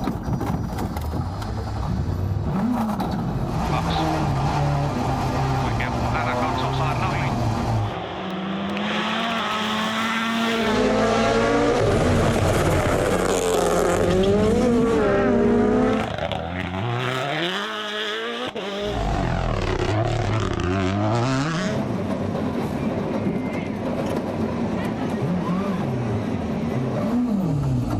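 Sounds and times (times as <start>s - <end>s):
car engine revving: 2.4s - 22.0s.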